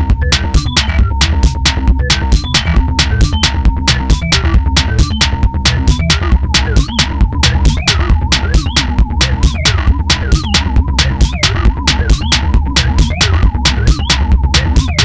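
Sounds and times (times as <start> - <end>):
deep synth bass: 0.0 - 15.0
drum machine ticking beat: 0.0 - 15.0.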